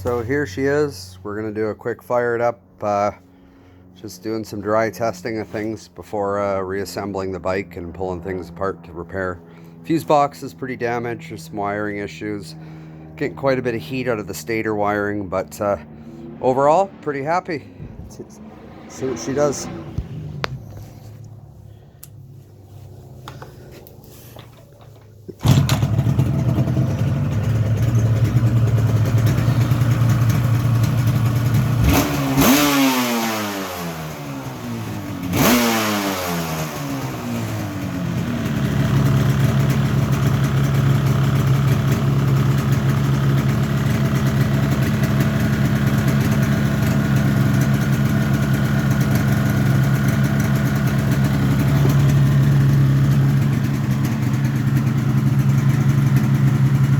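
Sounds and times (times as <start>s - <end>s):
two-stroke motorcycle engine revving: 18.0s - 21.0s, 25.3s - 56.9s.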